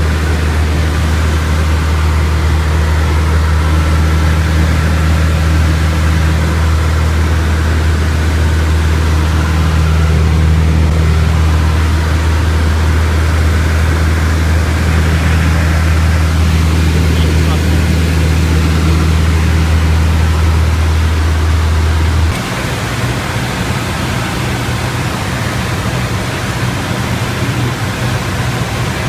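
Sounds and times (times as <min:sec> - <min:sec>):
airplane propeller engine drone: 0:00.0 - 0:29.0.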